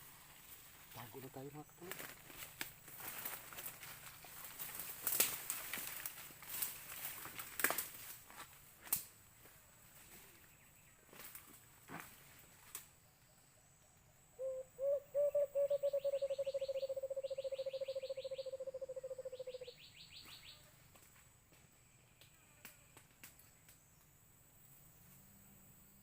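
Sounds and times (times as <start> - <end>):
dove hooting: 14.4 - 20.2.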